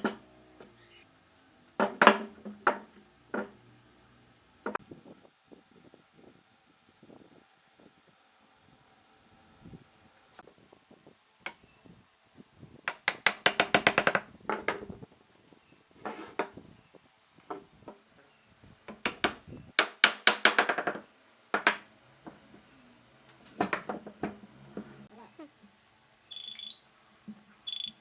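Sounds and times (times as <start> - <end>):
hammering on wood: 1.8 - 3.6, 12.9 - 14.8, 18.9 - 22.6, 23.5 - 24.9.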